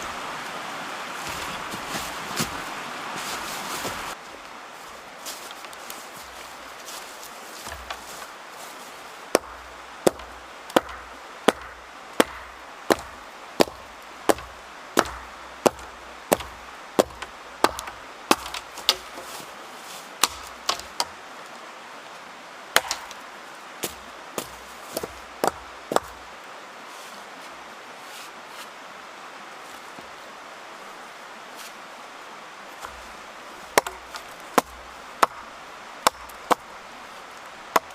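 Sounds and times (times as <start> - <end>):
wood chopping strokes: 1.1 - 4.5, 5.2 - 8.3, 9.3 - 21.2, 22.8 - 26.3, 32.8 - 37.9.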